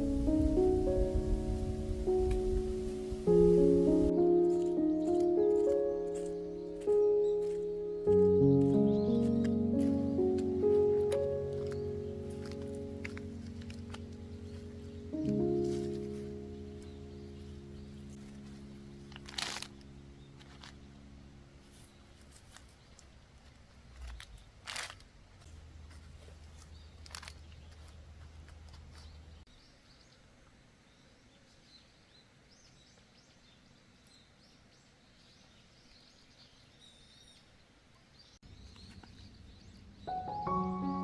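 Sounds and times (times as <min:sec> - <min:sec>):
soft background music: 0:00.0 - 0:22.4, 0:40.0 - 0:41.0
small birds chirping: 0:00.0 - 0:41.0
sharp clicks and rustles: 0:18.1 - 0:20.8, 0:22.2 - 0:29.4.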